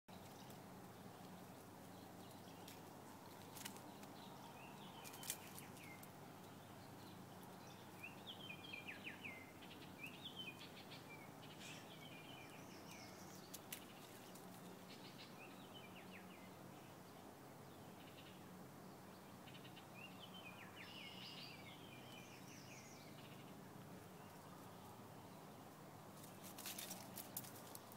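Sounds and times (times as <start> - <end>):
wild birds chirping: 0.1 - 27.9.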